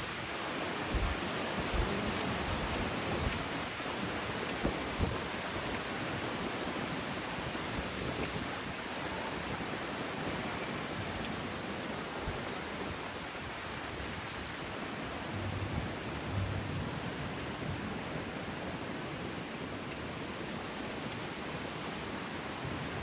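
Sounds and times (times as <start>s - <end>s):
wind buffeting microphone: 0.0s - 6.9s, 7.5s - 19.3s
strong wind rushing: 12.3s - 18.2s.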